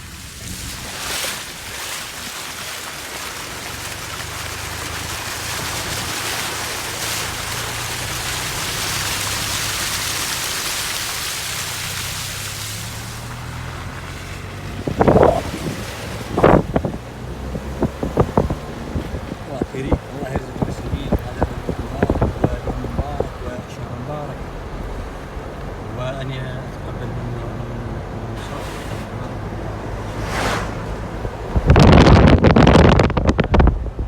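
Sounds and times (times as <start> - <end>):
heavy rain falling: 1.5 - 26.7.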